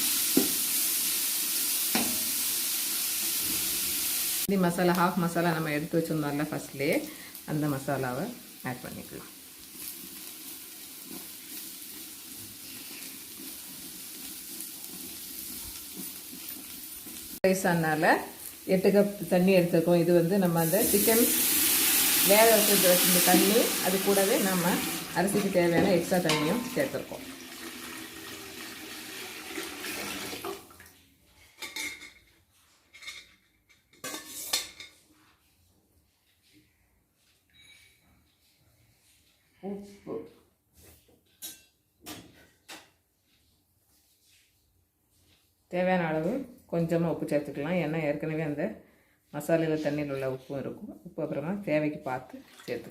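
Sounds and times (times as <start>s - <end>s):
spices sizzling in oil: 0.0s - 29.8s
metal utensil clinking against pot: 25.8s - 26.8s
liquid poured into pot: 26.3s - 31.0s, 52.4s - 52.9s.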